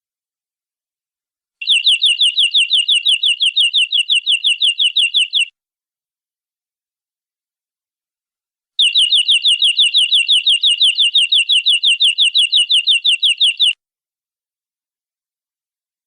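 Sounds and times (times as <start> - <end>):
canary trilling: 1.6 - 5.5, 8.8 - 13.8.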